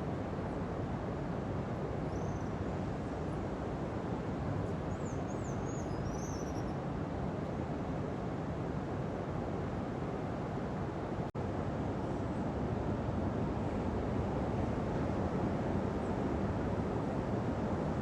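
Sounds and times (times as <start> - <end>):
faint high bird chirps: 4.9 - 6.8.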